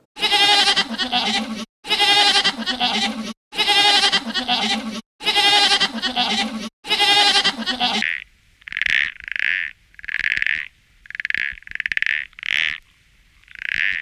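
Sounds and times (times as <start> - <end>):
farm animal bleating: 0.2 - 8.0
short croaking calls: 7.0 - 14.0.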